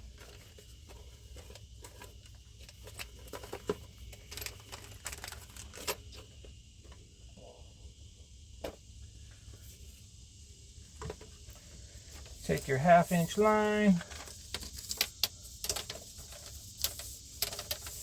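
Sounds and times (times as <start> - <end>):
tools and parts clicking: 14.0 - 18.0.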